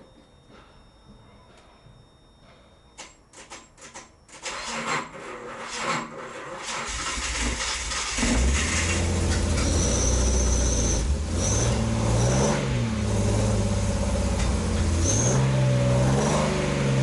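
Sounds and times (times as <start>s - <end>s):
car engine cranking and starting: 3.9s - 17.0s.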